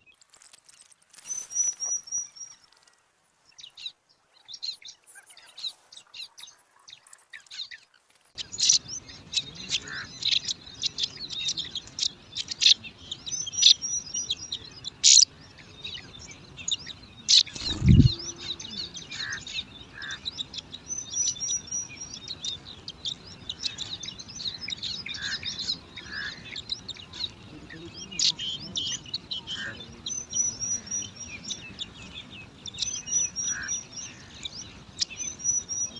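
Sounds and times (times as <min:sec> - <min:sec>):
nestlings begging chirps: 0:01.1 - 0:03.0, 0:08.4 - 0:35.9.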